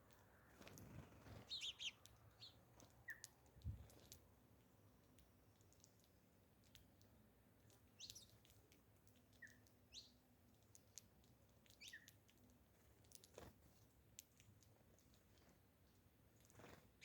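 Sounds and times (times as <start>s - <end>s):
faint bird chirps: 0.5s - 4.2s, 7.9s - 8.5s, 9.3s - 10.2s, 11.7s - 12.2s.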